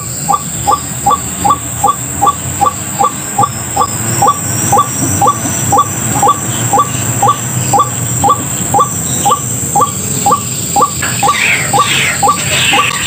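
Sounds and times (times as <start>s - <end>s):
waterhen calling: 0.0s - 13.0s.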